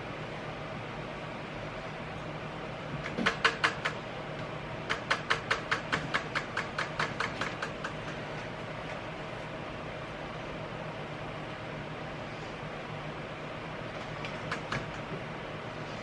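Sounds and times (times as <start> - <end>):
sharp clicks: 3.0 - 4.0, 4.9 - 8.2.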